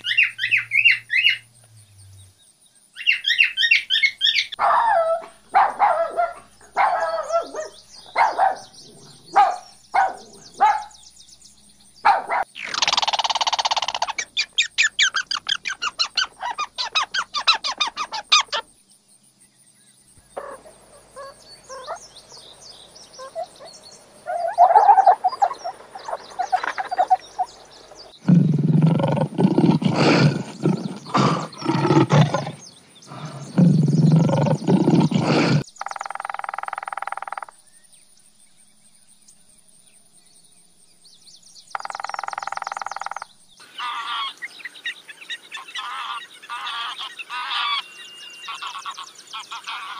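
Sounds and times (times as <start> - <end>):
animal calls: 0.0 - 1.5, 3.0 - 11.0, 12.0 - 18.7, 20.3 - 37.6, 41.7 - 49.9
lion grunting roars: 28.2 - 35.7.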